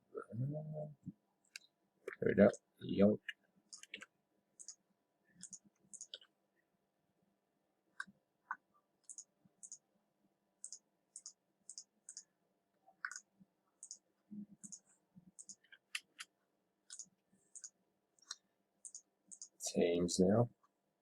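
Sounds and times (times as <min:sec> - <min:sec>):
computer mouse clicking: 0:03.3 - 0:04.8, 0:05.4 - 0:06.3, 0:08.0 - 0:09.8, 0:10.6 - 0:12.3, 0:13.0 - 0:14.0, 0:14.6 - 0:16.3, 0:16.9 - 0:19.6.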